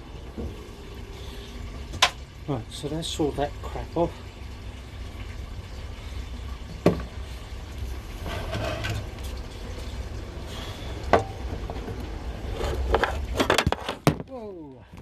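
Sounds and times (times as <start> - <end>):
low steady rumble: 0.0 - 14.2
rattling clatter: 8.2 - 9.4, 11.2 - 14.3.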